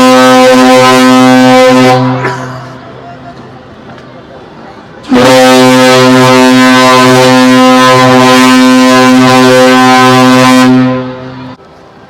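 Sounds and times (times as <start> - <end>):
deep ship horn blast: 0.0 - 2.4, 5.0 - 11.6.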